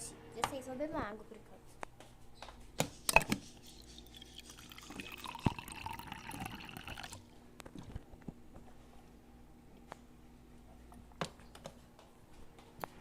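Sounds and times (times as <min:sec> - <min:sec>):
water pouring into cup: 0:03.6 - 0:07.3.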